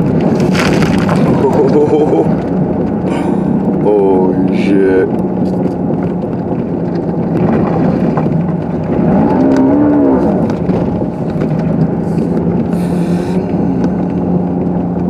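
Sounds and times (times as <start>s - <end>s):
car engine hum: 0.0s - 15.0s
car ploughing through snow: 0.0s - 15.0s
moaning tone: 8.8s - 15.0s.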